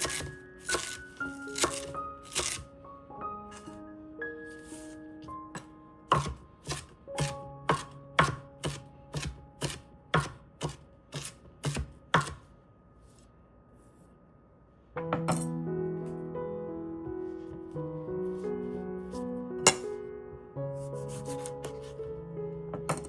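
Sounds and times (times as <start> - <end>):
knife chopping on cutting board: 0.0 - 2.7, 5.6 - 12.5, 19.7 - 20.0, 21.0 - 22.0.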